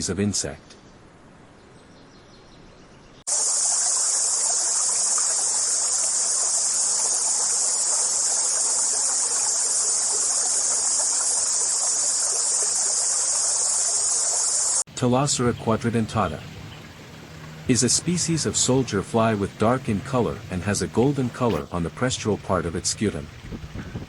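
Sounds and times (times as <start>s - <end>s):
insect chorus: 3.3s - 14.9s
stream rushing: 3.3s - 24.0s.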